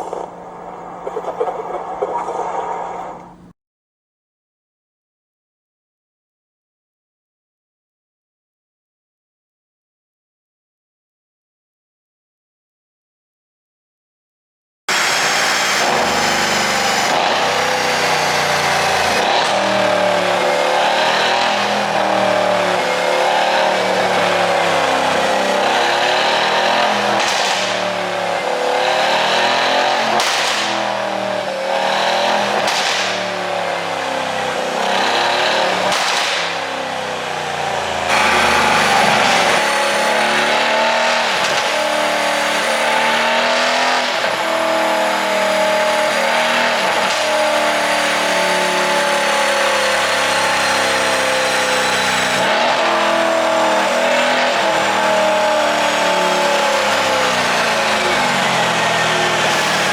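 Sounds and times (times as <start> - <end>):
car engine revving: 0.0 - 3.5, 14.9 - 59.9
exhaust cracks: 0.0 - 3.5, 14.9 - 31.0, 32.1 - 33.9, 34.6 - 36.8, 37.6 - 48.1.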